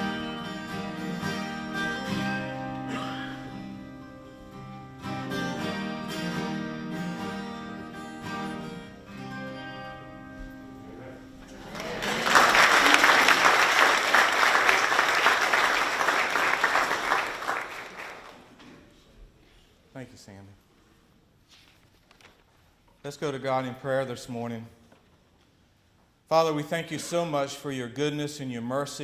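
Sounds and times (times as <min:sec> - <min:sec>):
instrumental guitar music: 0:00.0 - 0:11.6
crowd applauding: 0:11.5 - 0:18.6.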